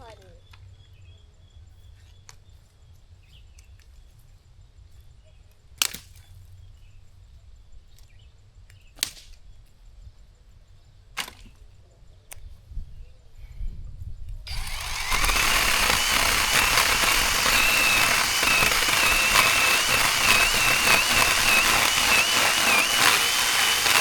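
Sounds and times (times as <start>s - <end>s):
sharp cracks: 14.5s - 24.0s.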